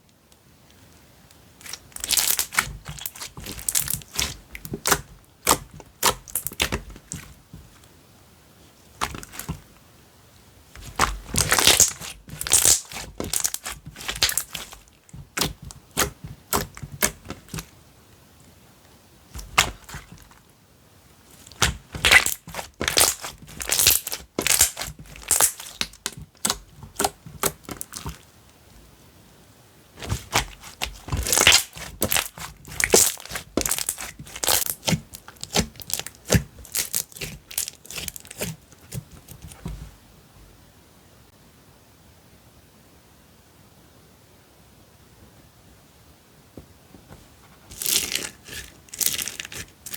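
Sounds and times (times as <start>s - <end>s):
slime squishing with crackling pops: 1.5s - 7.8s, 8.9s - 9.8s, 10.8s - 17.8s, 19.3s - 20.4s, 21.3s - 28.3s, 30.0s - 39.8s, 47.7s - 49.9s.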